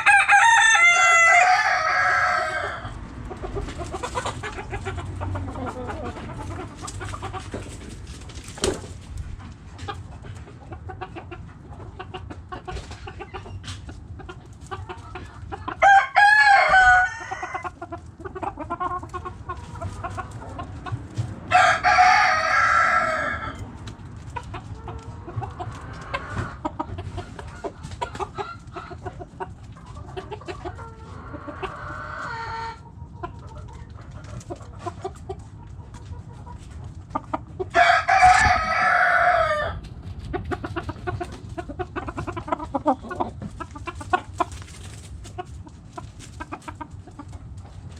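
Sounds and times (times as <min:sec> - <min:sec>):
rooster crowing: 0:00.0 - 0:03.0, 0:15.8 - 0:17.8, 0:21.5 - 0:23.7, 0:37.7 - 0:39.8
hens clucking: 0:00.0 - 0:47.9.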